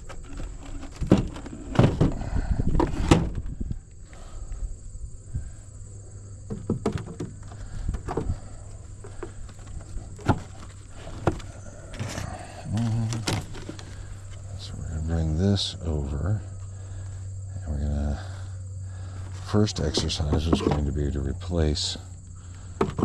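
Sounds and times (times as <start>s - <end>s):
wooden frames knocking: 0.0s - 3.4s, 6.5s - 14.5s, 19.7s - 21.0s, 22.7s - 23.0s.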